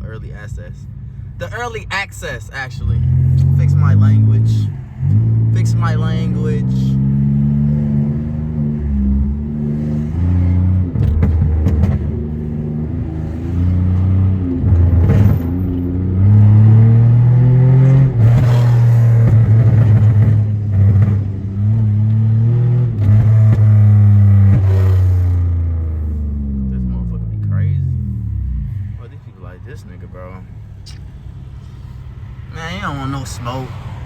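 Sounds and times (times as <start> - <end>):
car exhaust revving hard: 2.6 - 29.1
exhaust crackling pops: 10.9 - 12.5.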